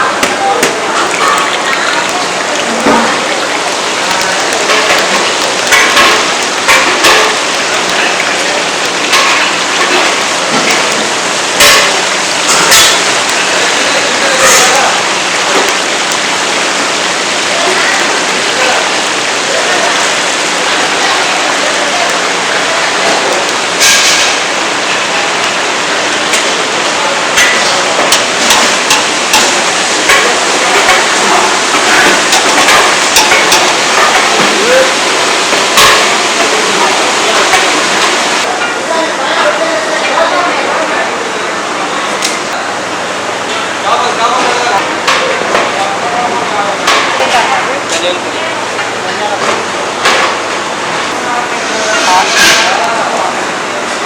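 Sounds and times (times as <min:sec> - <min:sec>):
oil crackles: 0:00.0 - 0:38.5
food sizzling in hot oil: 0:00.0 - 0:41.4, 0:42.3 - 0:54.0.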